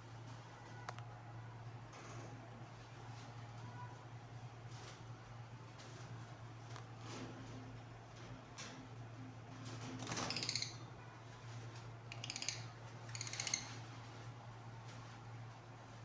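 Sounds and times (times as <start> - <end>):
birds raspy chattering calls: 12.1 - 13.8.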